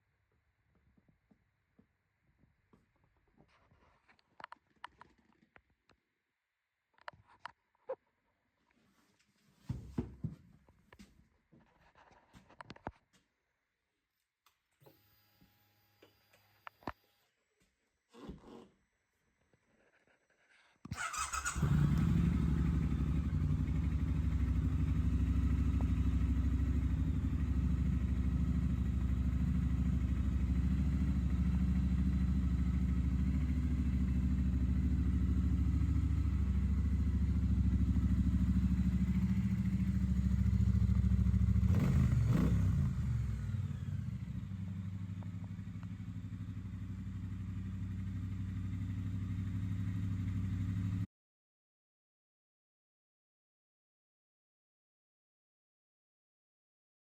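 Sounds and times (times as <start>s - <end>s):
motorcycle engine idling: 21.0s - 51.0s.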